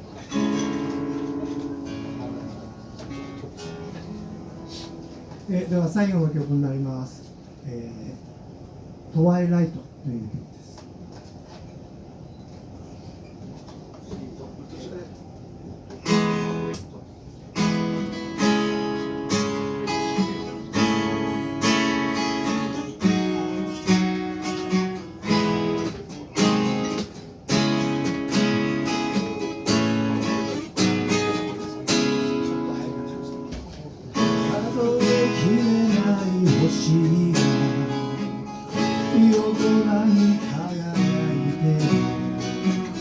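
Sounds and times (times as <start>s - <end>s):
acoustic guitar strumming chords: 0.0s - 5.6s, 16.0s - 16.9s, 17.5s - 43.0s.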